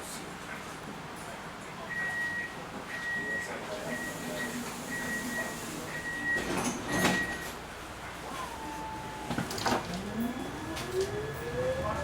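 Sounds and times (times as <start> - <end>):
rising electric motor whine: 9.0 - 12.0.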